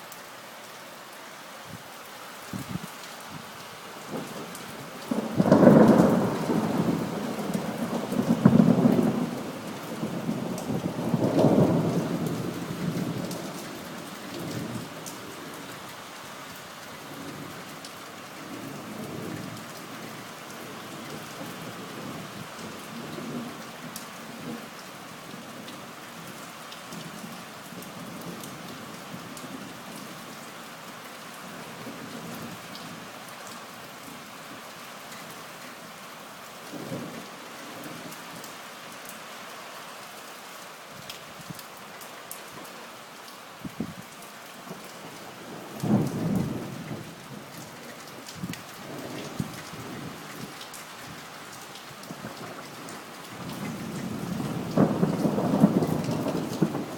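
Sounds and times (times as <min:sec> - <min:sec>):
steady rain: 0:00.0 - 0:56.9
thunder rumbling: 0:04.1 - 0:09.4, 0:53.4 - 0:56.9
distant thunder rumbles: 0:05.1 - 0:12.6, 0:53.4 - 0:56.9.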